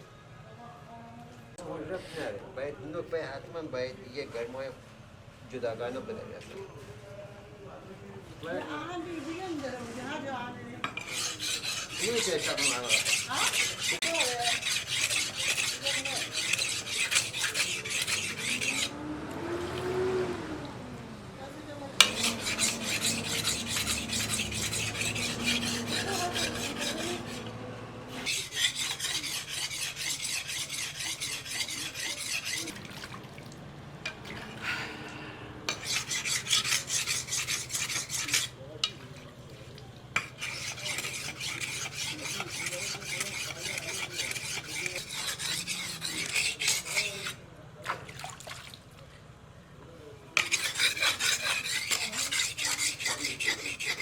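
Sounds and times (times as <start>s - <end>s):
sickle blade being sharpened: 10.9s - 18.9s, 22.0s - 27.5s, 28.2s - 32.7s, 35.7s - 39.0s, 40.2s - 47.4s, 50.4s - 54.0s.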